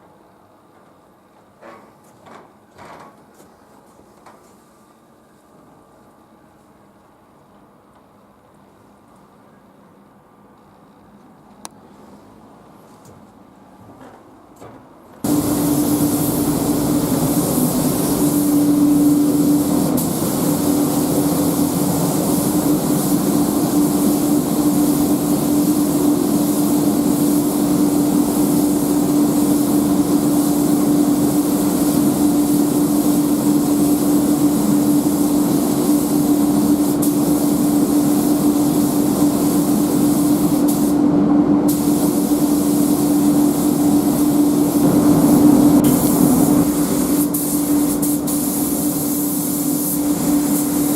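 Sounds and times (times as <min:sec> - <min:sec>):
steady hum: 0:15.2 - 0:50.9
compressed-air tool hissing: 0:15.3 - 0:41.0.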